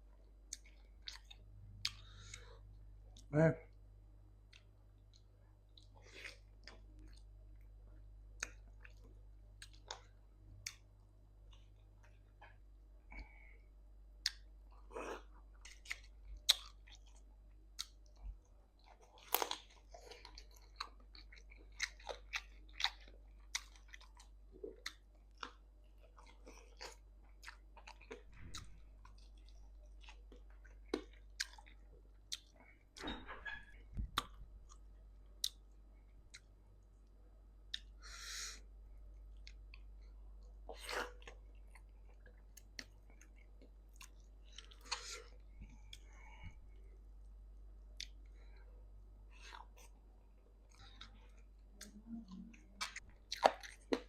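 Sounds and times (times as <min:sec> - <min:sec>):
wet chewing sounds: 0:00.4 - 0:03.3, 0:08.4 - 0:10.9, 0:14.2 - 0:32.8, 0:39.2 - 0:46.4, 0:49.3 - 0:54.0.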